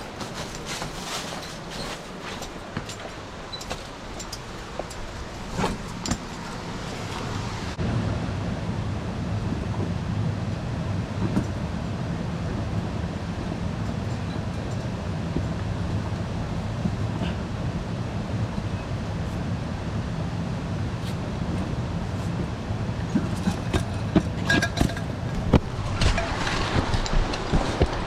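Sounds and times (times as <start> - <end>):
mountain stream rushing: 0.0 - 7.8, 21.9 - 28.0
wind buffeting microphone: 0.0 - 28.0.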